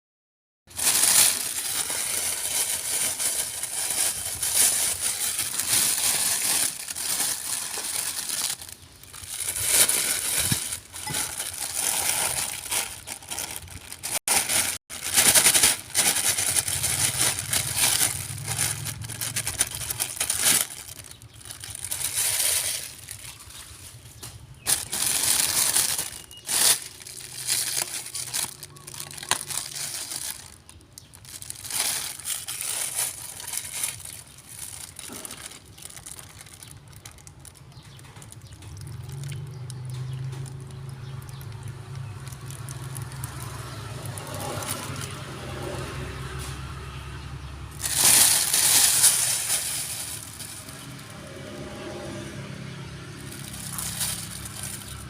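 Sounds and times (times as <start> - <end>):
pet chewing crunchy food: 53.0 - 55.0.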